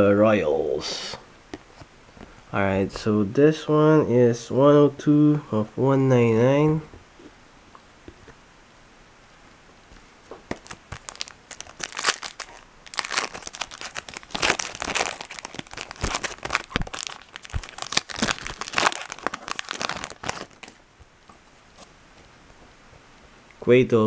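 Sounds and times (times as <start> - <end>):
foil wrapper crinkling: 10.5 - 20.8.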